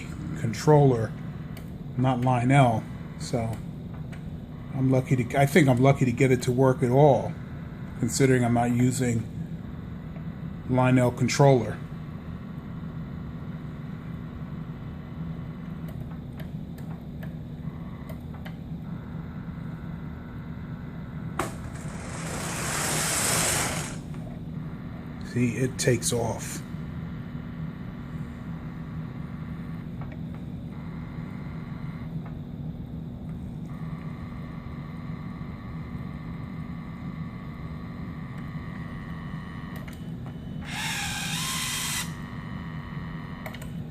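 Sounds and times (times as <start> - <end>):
model train electrical hum: 0.0 - 43.9
loud hiss: 21.4 - 24.1
toy train motor humming: 21.4 - 24.1, 40.6 - 43.4.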